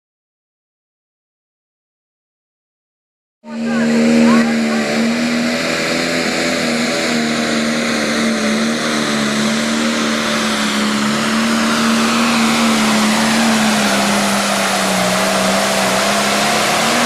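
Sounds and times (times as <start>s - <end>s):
diesel engine at high revs: 3.5s - 17.0s.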